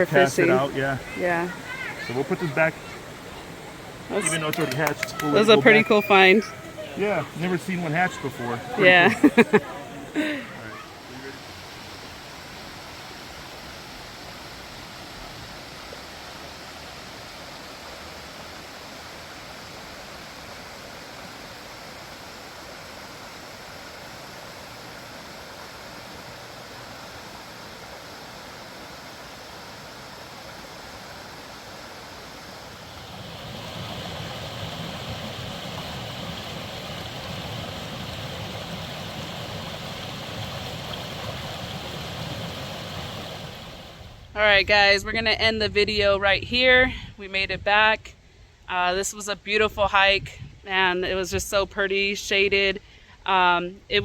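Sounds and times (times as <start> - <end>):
creek water over rocks: 0.0 - 44.4.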